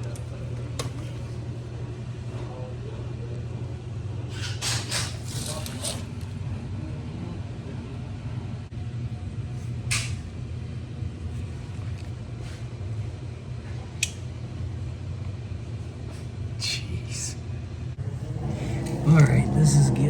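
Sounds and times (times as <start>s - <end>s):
motor humming: 18.0s - 20.0s.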